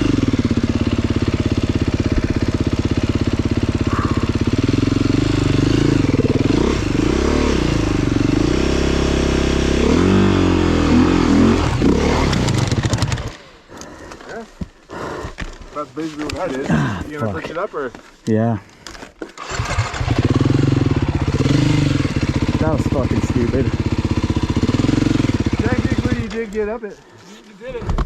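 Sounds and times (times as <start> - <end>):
dirt bike engine revving: 0.0 - 13.5, 19.4 - 26.6.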